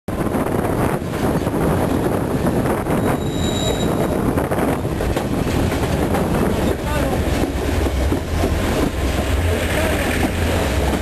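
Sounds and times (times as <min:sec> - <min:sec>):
train cars rumbling on rails: 0:00.1 - 0:11.0
wind buffeting microphone: 0:00.1 - 0:11.0
high-pitched squeal: 0:03.0 - 0:04.3.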